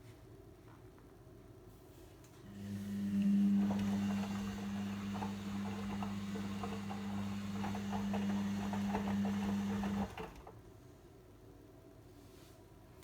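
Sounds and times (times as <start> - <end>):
washing machine running: 2.5 - 10.6.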